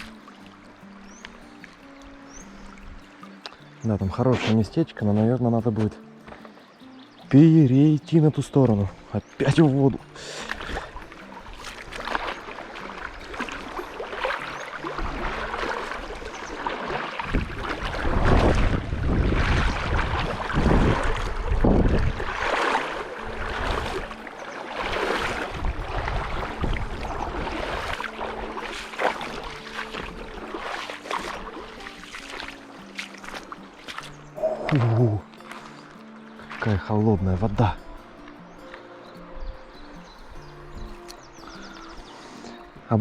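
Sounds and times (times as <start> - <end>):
legs wading through river water: 0.0 - 43.0
wind buffeting microphone: 17.2 - 28.6, 39.4 - 42.1.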